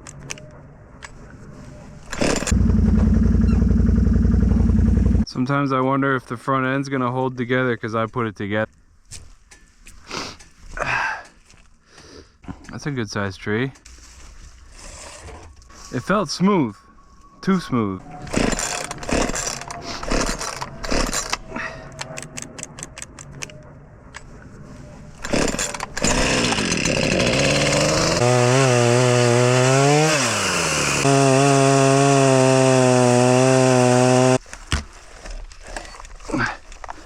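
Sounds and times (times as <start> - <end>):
small engine running at high revs: 2.2 - 5.2, 25.2 - 34.4.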